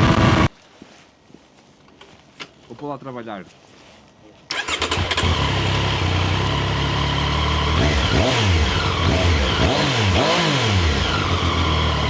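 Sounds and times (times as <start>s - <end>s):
engine revving: 0.0s - 0.5s, 4.5s - 12.0s
motorcycle engine idling: 4.6s - 9.7s.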